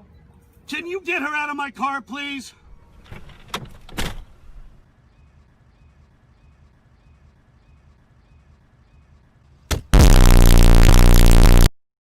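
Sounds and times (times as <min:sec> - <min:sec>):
loud distorted pitched blast: 0:09.9 - 0:11.7
faint low hum: 0:10.0 - 0:11.7.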